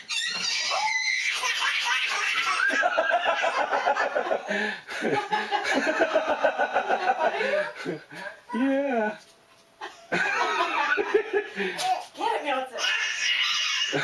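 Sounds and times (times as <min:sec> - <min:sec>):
hearty laughter: 0:02.7 - 0:08.1, 0:09.8 - 0:11.6.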